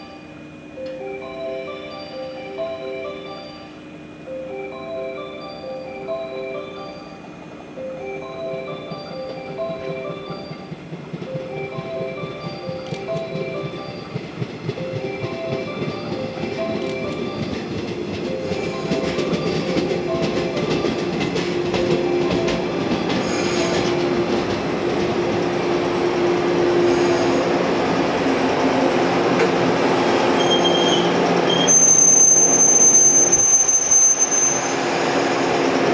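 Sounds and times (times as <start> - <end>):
train running past: 0.0 - 35.9
wheels clicking over rail joints: 9.3 - 26.0
wheel squeal: 23.0 - 24.0, 30.3 - 35.0.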